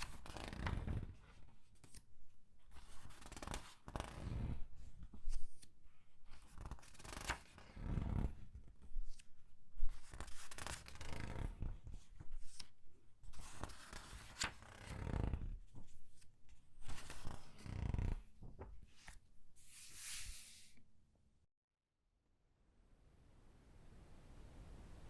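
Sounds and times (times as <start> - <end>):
paper pages rustling and crinkling: 6.4 - 8.4, 9.9 - 12.7, 13.3 - 20.7.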